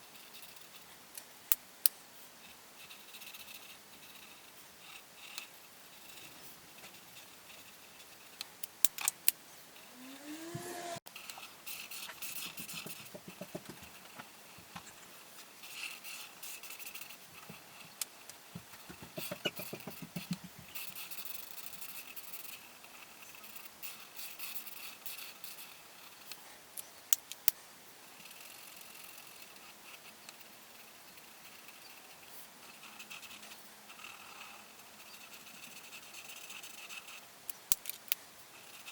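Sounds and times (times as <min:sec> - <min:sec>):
coloring strokes scratching on paper: 0:00.0 - 0:00.9, 0:02.2 - 0:08.4, 0:09.8 - 0:14.1, 0:15.6 - 0:17.9, 0:18.8 - 0:26.3, 0:28.1 - 0:37.2, 0:38.5 - 0:38.9
short rising squeak: 0:09.8 - 0:11.0.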